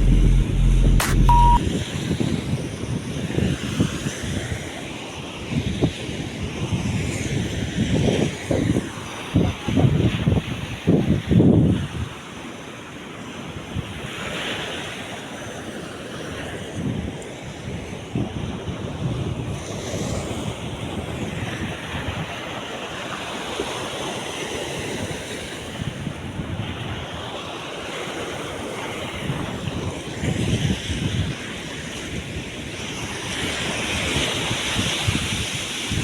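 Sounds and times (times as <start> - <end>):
wind gusting on microphone: 5.5 - 12.2.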